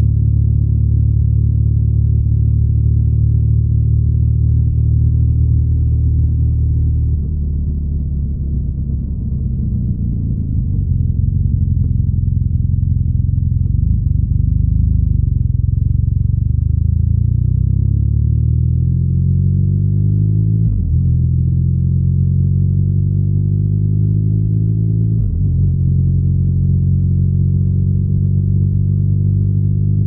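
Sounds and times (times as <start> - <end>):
motorcycle engine accelerating: 2.2 - 30.0.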